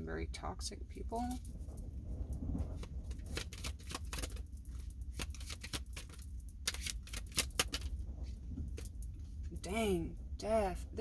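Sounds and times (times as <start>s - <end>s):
cards shuffling and clicking: 2.8s - 4.5s, 5.1s - 7.9s.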